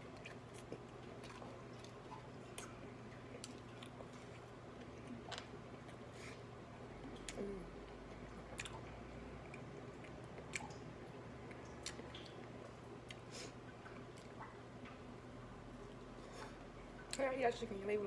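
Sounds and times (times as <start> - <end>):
steady low hum: 0.0 - 18.0
person chewing and lip-smacking: 7.0 - 13.2.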